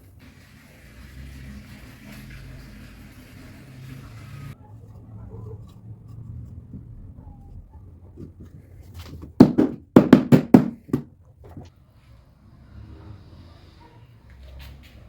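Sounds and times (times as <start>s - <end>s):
sharp knocks on wood: 9.2s - 11.7s.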